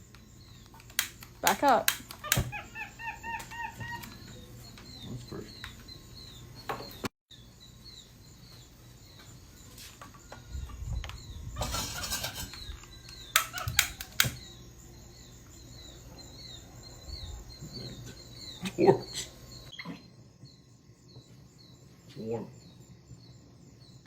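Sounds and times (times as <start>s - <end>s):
high falling chirps: 0.0s - 24.0s
sharp clicks: 0.1s - 2.6s, 12.8s - 14.5s.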